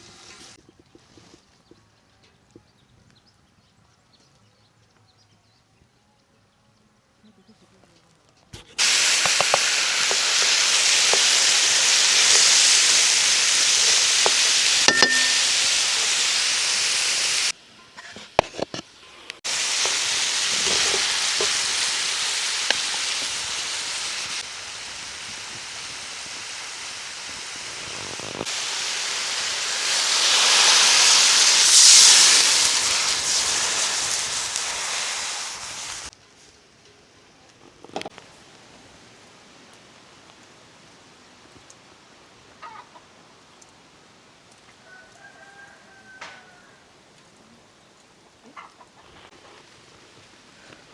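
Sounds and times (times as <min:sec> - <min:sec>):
food sizzling in a pot: 0:08.6 - 0:36.1.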